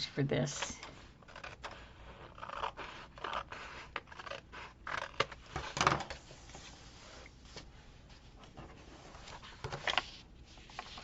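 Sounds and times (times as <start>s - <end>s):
paper rustling: 4.9s - 11.0s.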